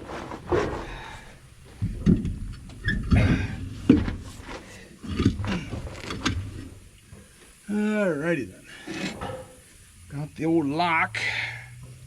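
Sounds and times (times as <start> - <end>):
knocks and clunks on trailer wheel: 0.0 - 7.6, 8.8 - 9.7.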